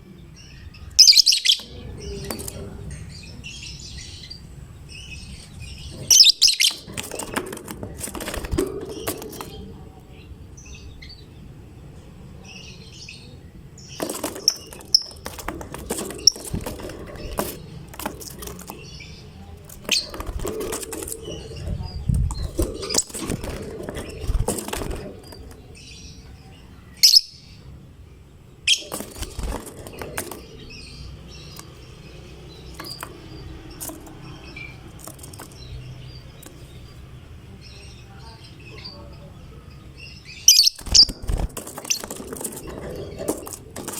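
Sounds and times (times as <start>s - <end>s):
lovebirds chirping: 0.0s - 43.9s
wings flapping: 5.9s - 9.7s, 14.0s - 25.7s, 28.7s - 30.7s, 32.7s - 35.7s, 40.6s - 43.9s.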